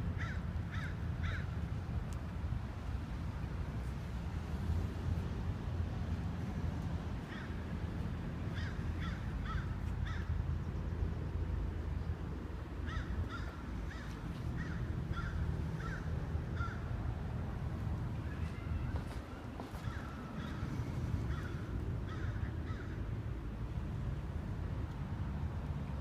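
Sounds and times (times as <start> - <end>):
steady low rumble: 0.0 - 26.0
bird cawing: 0.2 - 1.6, 7.2 - 7.6, 8.5 - 10.4, 12.8 - 17.0, 18.2 - 23.1.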